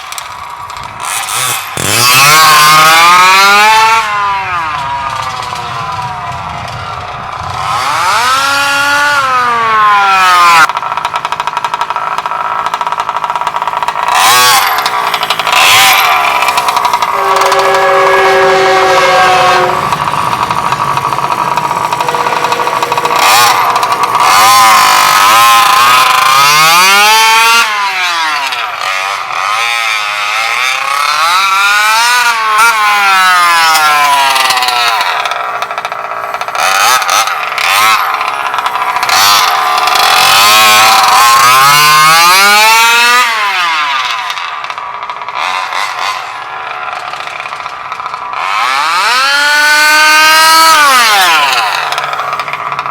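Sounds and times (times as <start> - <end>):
two-stroke engine revving: 0.0 - 52.9.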